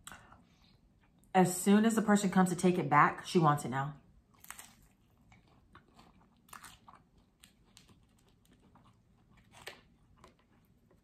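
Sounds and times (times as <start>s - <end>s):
faint chewing: 4.3s - 11.0s.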